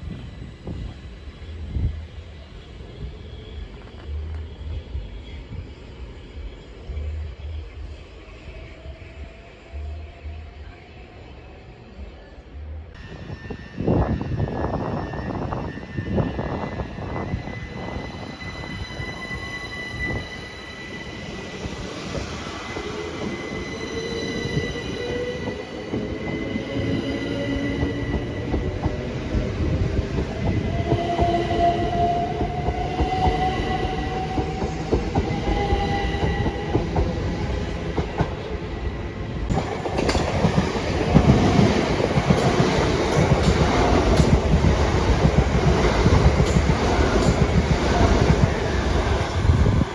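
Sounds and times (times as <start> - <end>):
train rumbling on rails: 0.0 - 49.9
thin steady squeal: 13.0 - 37.7.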